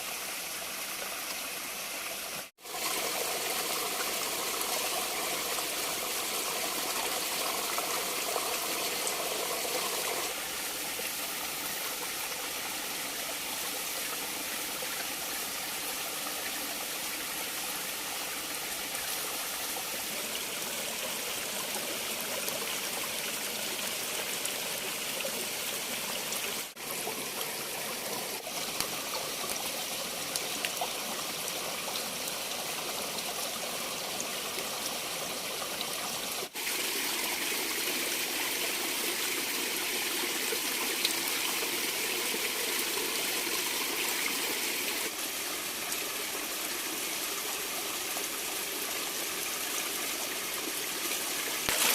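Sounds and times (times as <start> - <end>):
stream rushing: 36.5 - 51.9.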